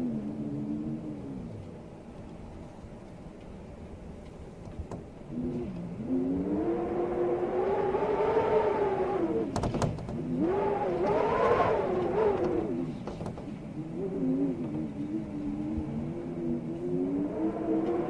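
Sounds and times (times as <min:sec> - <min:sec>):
storm wind howling: 0:00.0 - 0:18.0
sharp clicks or knocks: 0:09.5 - 0:10.2.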